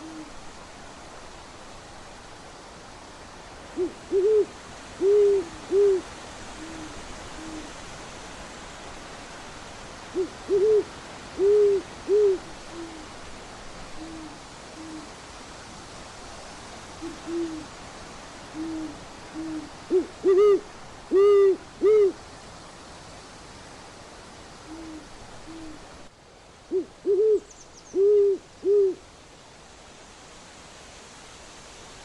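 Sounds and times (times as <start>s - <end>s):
fainter lower owl hoots: 0.0s - 0.4s, 3.7s - 7.8s, 10.1s - 13.2s, 13.9s - 15.2s, 17.0s - 17.8s, 18.5s - 22.2s, 24.6s - 25.8s, 26.7s - 29.0s
owl hooting: 0.0s - 0.4s, 3.8s - 7.8s, 10.1s - 13.1s, 14.0s - 15.2s, 17.0s - 17.7s, 18.5s - 22.2s, 24.6s - 25.8s, 26.7s - 29.0s.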